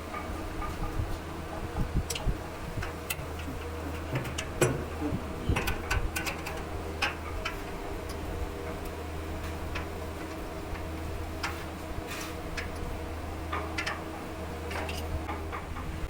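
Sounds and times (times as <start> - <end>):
low electric hum: 0.0 - 16.0
metal tools clicking and tapping: 2.1 - 9.0, 9.7 - 11.6, 12.2 - 12.8, 13.5 - 14.1, 14.7 - 15.8.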